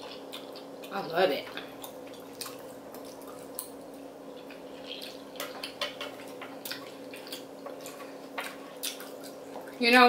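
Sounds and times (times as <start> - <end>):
steady low hum: 0.0 - 10.0
wet chewing and mouth smacks: 1.5 - 5.8, 6.6 - 9.8.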